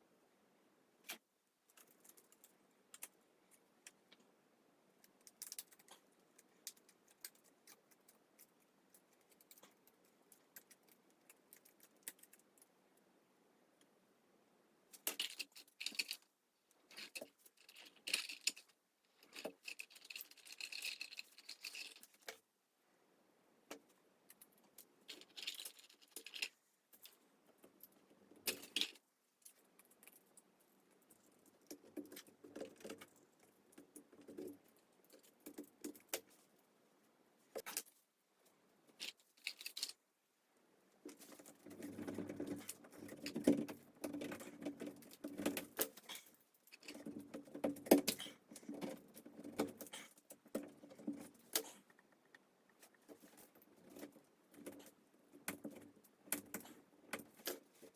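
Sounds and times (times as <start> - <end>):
craft materials handled by hand: 14.9 - 22.5, 40.9 - 57.9.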